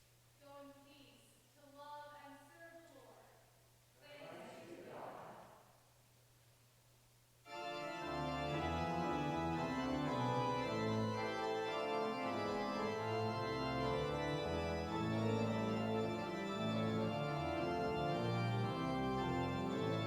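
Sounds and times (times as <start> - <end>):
organ music: 7.4 - 20.0.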